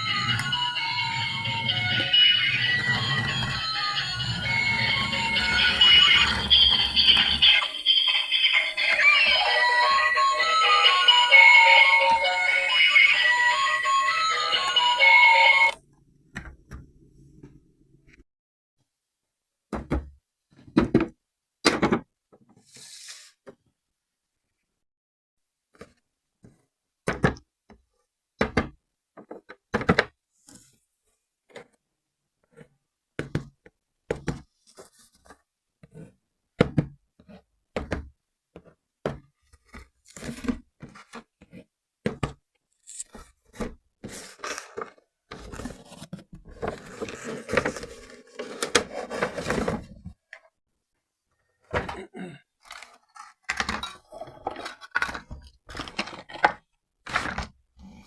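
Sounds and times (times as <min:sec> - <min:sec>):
packaging scraping and rustling: 0:44.0 - 0:50.1.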